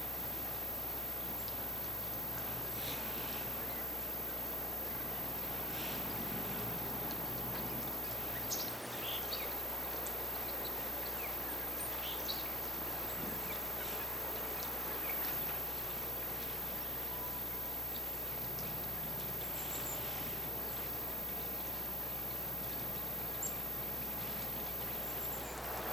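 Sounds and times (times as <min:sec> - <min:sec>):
steady outdoor hiss: 0:00.0 - 0:25.9.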